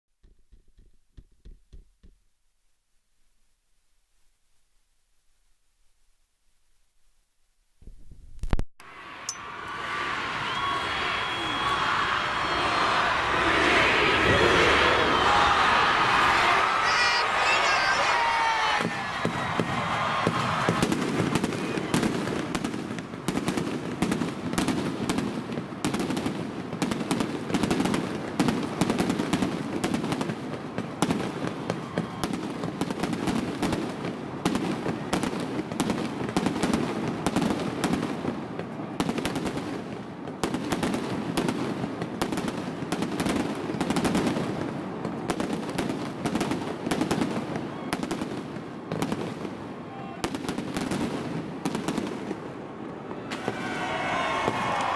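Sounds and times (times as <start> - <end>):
fireworks bangs and crackles: 17.6 - 54.9.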